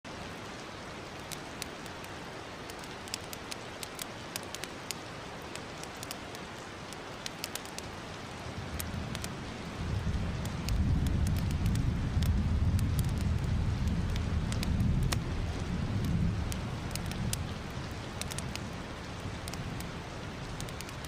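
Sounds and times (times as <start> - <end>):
fireplace fire crackling: 0.2 - 21.0
low rumble: 8.9 - 17.7.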